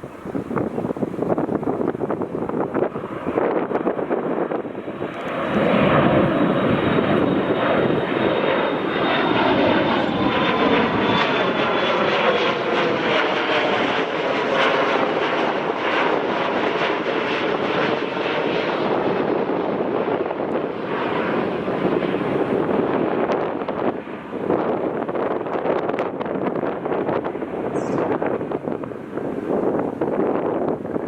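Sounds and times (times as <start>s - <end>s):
jet airliner engines passing: 0.0s - 31.0s
high whine falling in pitch: 27.6s - 28.7s.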